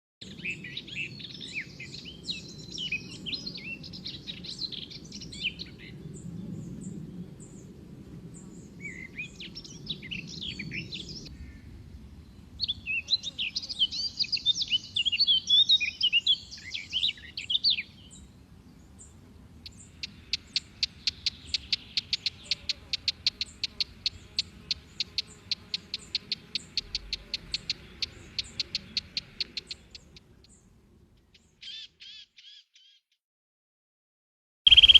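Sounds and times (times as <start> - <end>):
songbirds warbling: 0.2 - 33.0, 34.7 - 34.9
rapid short repeated chirps: 20.0 - 30.2, 34.7 - 34.9.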